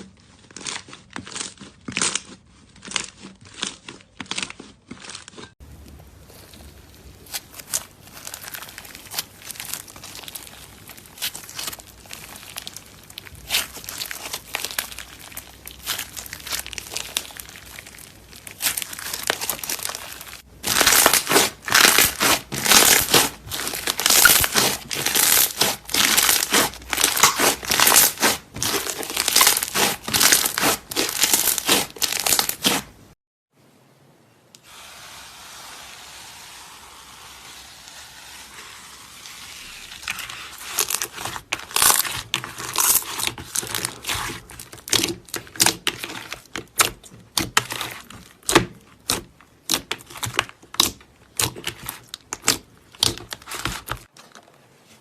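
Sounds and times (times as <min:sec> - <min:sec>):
slime squeezed by hand crackling: 0:06.0 - 0:33.0.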